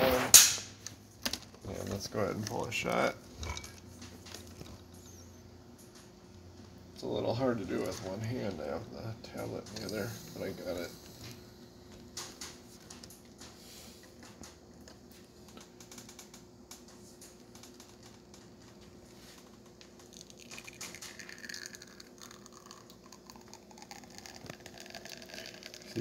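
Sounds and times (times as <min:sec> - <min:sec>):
steady low hum: 0:00.0 - 0:26.0
espresso dripping into cup: 0:20.0 - 0:26.0.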